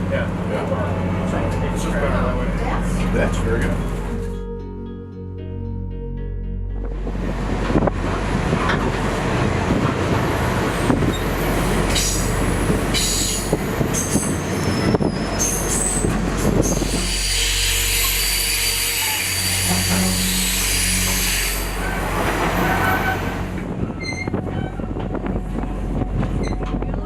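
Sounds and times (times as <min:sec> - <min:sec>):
train wheels rumbling: 0:06.9 - 0:27.0
high-pitched wheel squeal: 0:13.0 - 0:24.9.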